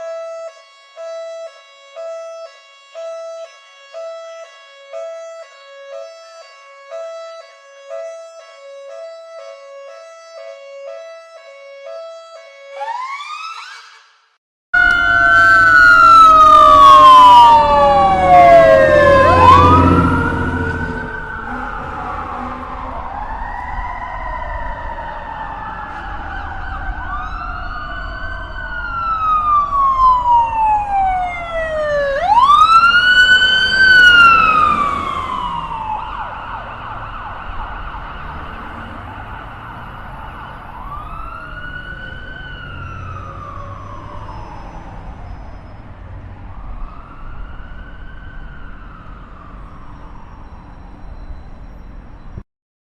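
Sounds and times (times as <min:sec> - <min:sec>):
police siren wailing: 0:00.0 - 0:14.1, 0:14.8 - 0:52.2
low traffic rumble: 0:14.8 - 0:52.4.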